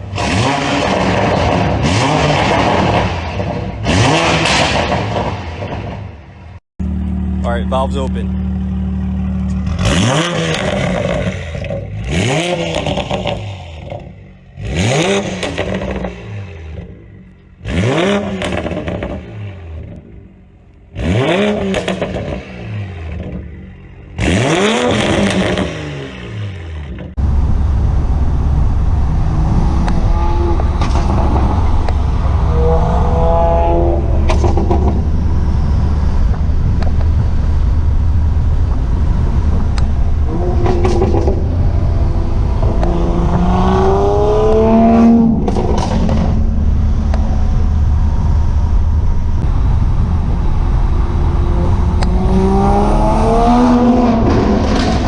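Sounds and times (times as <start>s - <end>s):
car exhaust revving: 0.0s - 55.0s
deep exhaust drone: 26.5s - 55.0s.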